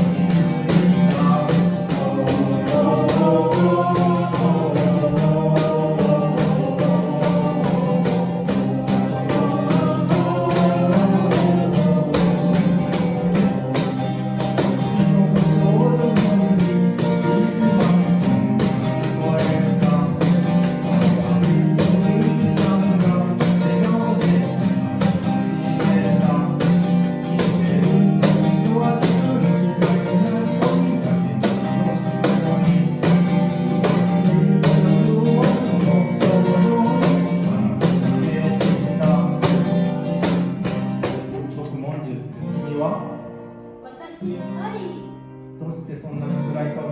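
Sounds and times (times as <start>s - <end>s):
person singing: 0.0s - 40.6s
acoustic guitar strumming: 0.0s - 46.9s.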